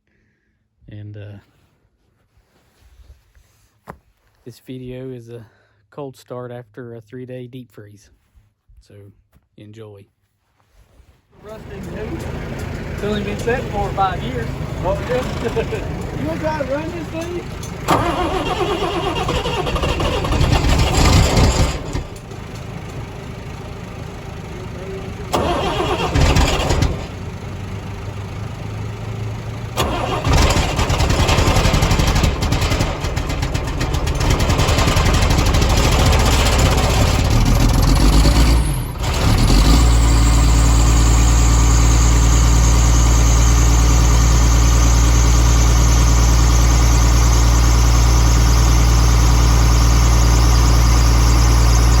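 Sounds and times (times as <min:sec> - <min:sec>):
diesel engine starting and idling: 0:11.4 - 0:52.0.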